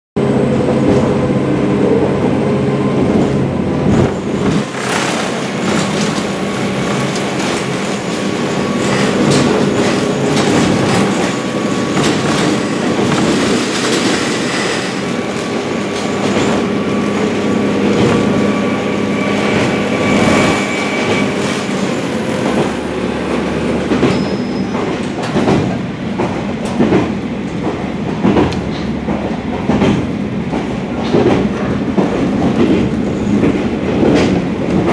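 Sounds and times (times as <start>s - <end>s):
train rumble inside carriage: 0.2s - 34.9s
wheels clicking over rail joints: 3.8s - 17.3s, 23.4s - 34.9s
high wheel squeal: 12.5s - 22.3s, 23.9s - 25.0s.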